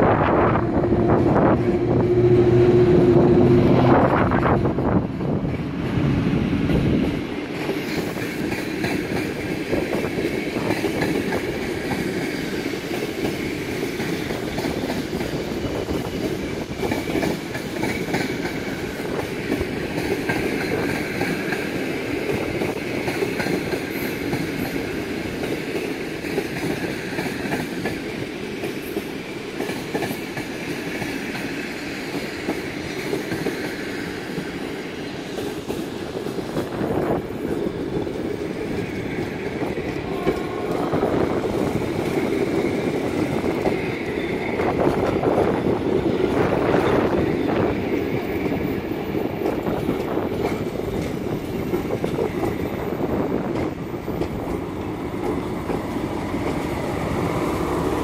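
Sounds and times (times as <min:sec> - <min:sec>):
wheels rumbling on rail: 0:00.0 - 0:58.0.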